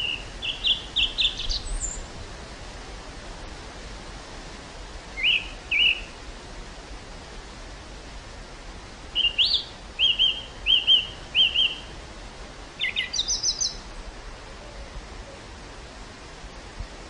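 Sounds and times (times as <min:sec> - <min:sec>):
songbird chirping: 0:00.0 - 0:02.4, 0:05.2 - 0:06.2, 0:09.1 - 0:12.0, 0:12.8 - 0:15.5
wind blowing across field: 0:00.0 - 0:17.0.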